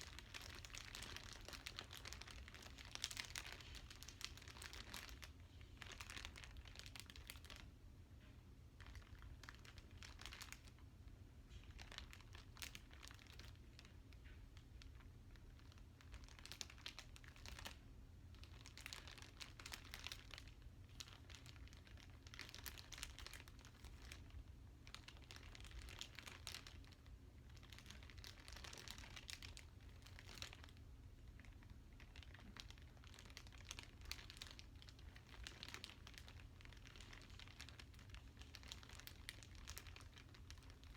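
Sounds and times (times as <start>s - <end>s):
plastic wrapping crinkling: 0.0s - 7.8s, 8.6s - 40.9s
faint low hum: 0.0s - 40.9s.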